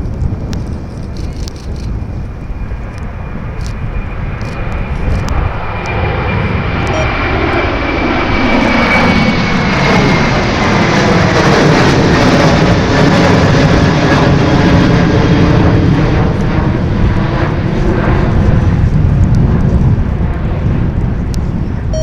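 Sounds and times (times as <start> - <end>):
jet engine rush with whine: 0.0 - 22.0.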